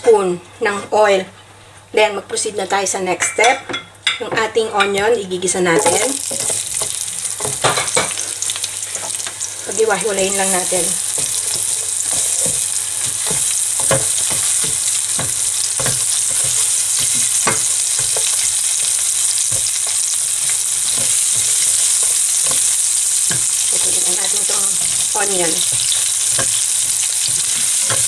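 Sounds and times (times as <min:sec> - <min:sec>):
onion sizzling in hot oil: 0:05.8 - 0:28.0
spatula scraping and tapping pan: 0:10.2 - 0:28.0.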